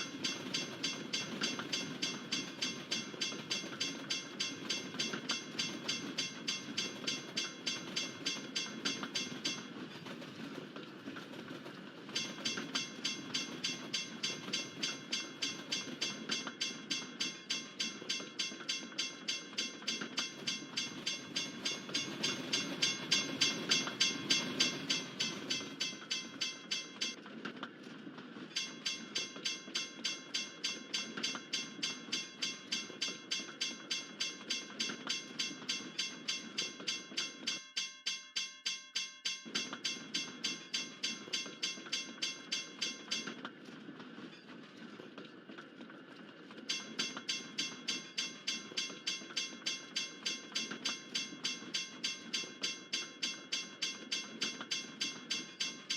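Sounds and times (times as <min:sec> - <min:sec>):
railroad crossing bell ringing: 0:00.0 - 0:10.5, 0:12.1 - 0:27.2, 0:28.5 - 0:43.5, 0:46.7 - 0:55.9
freight train rumbling and clattering: 0:00.0 - 0:37.5.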